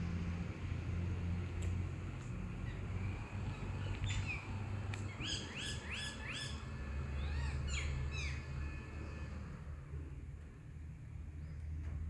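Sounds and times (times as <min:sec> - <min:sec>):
bird singing: 0:02.6 - 0:09.4.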